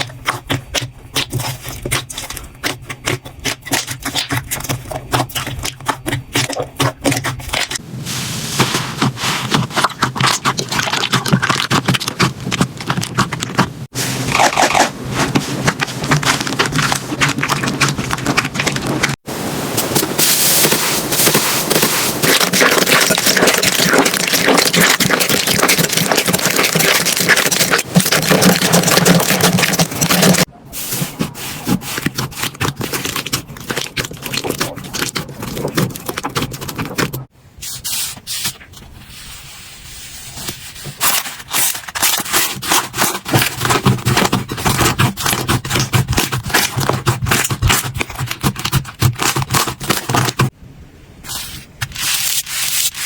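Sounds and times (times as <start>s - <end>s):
slime squeezed crackling and popping: 22.2s - 30.5s.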